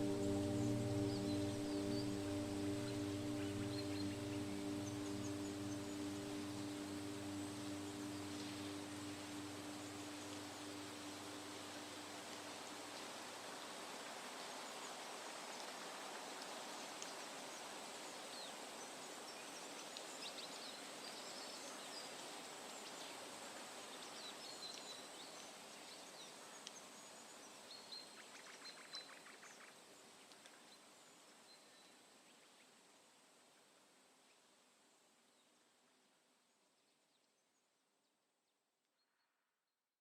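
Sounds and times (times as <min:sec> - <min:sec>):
bird chirps: 0:00.0 - 0:12.0
steady hiss: 0:00.0 - 0:27.7.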